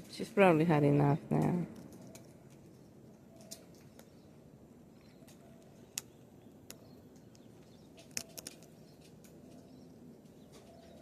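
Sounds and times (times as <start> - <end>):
cockatoo beak crunching food: 5.0 - 9.7.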